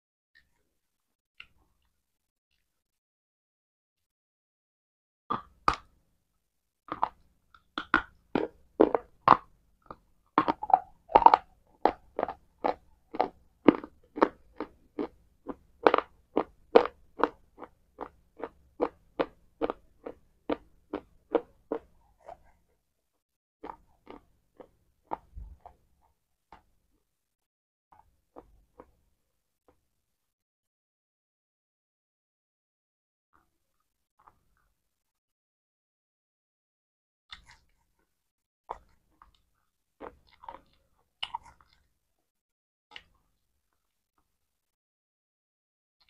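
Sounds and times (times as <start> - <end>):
person chewing crunchy food: 6.9 - 22.7, 23.6 - 26.7, 28.0 - 29.0, 37.3 - 38.0, 38.7 - 42.0.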